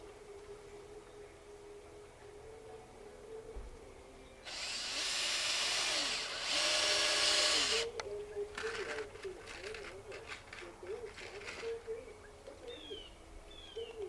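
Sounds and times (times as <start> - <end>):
power drill driving a screw: 4.5 - 8.0.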